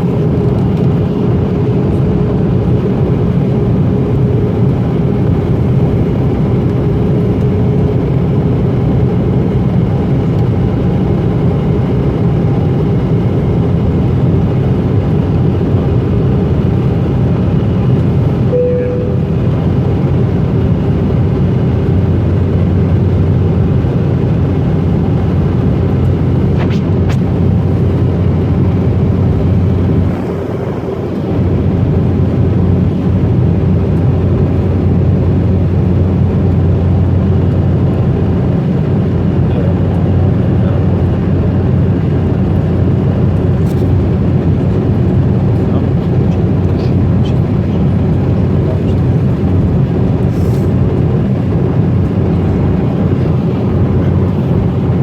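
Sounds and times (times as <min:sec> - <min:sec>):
jet engine hum in cabin: 0:00.0 - 0:55.0
airflow noise: 0:16.4 - 0:20.4, 0:50.2 - 0:55.0.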